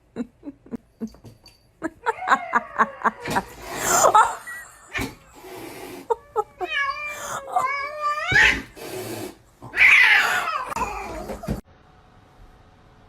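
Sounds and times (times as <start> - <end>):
cat yowling and meowing: 6.2 - 8.7, 9.7 - 11.6.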